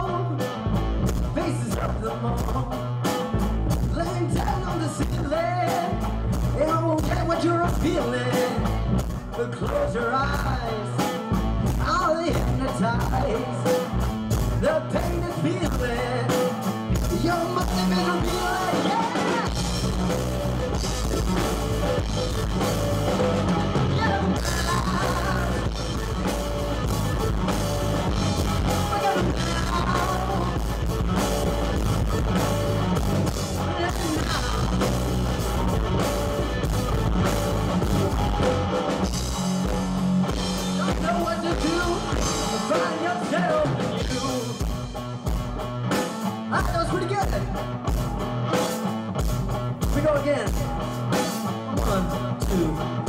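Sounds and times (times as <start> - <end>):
distorted electric guitar: 0.0 - 53.0
drum kit beat: 0.0 - 53.0
sung and shouted vocals: 17.2 - 19.8, 23.8 - 26.1, 28.5 - 30.8, 33.6 - 34.8.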